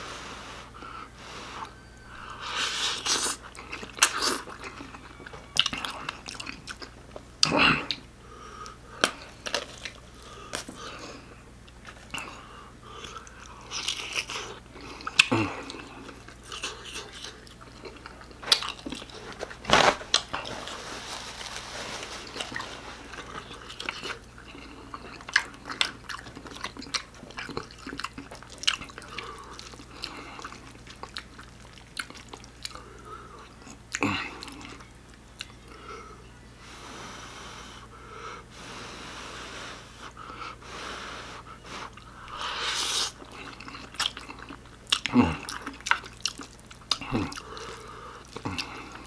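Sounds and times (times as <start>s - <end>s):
chewing and biting food: 2.3s - 8.0s, 9.0s - 12.4s, 13.0s - 20.8s, 21.5s - 35.8s, 41.8s - 49.0s
paper napkin rustling: 19.2s - 23.4s.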